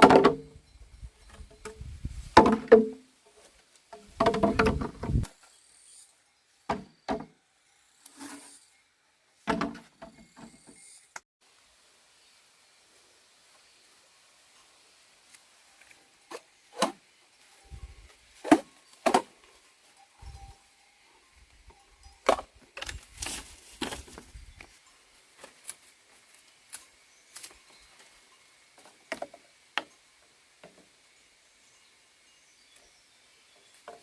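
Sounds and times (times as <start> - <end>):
sharp wooden knocks and clatters: 0.0 - 0.5, 1.3 - 3.0, 4.0 - 5.3, 9.5 - 10.5.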